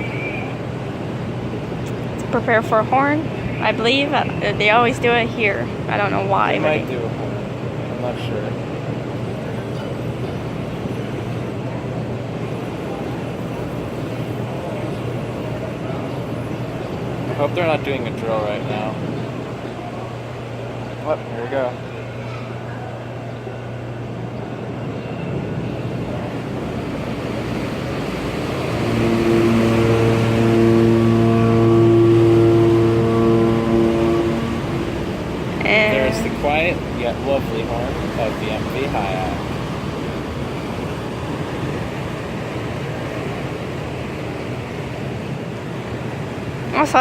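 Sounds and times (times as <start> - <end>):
engine drone: 19.4 - 47.0
rushing noise: 21.8 - 47.0
ferry horn long blast: 26.4 - 39.4.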